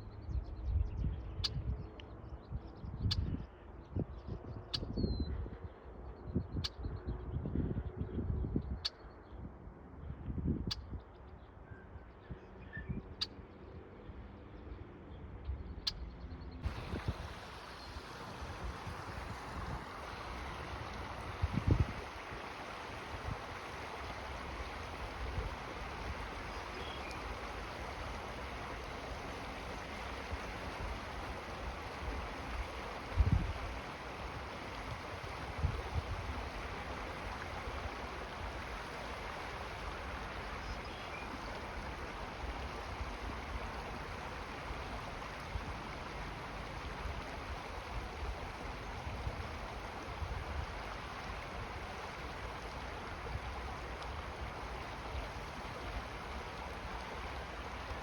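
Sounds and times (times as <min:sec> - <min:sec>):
low wind rumble: 0:00.0 - 0:13.1, 0:16.5 - 0:58.0
running water: 0:16.6 - 0:58.0.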